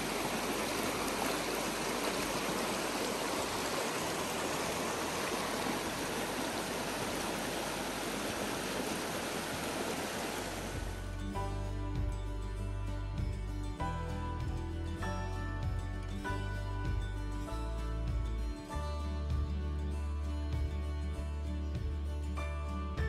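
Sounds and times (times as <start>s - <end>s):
flowing water rushing: 0.0s - 11.3s
music: 10.8s - 23.0s.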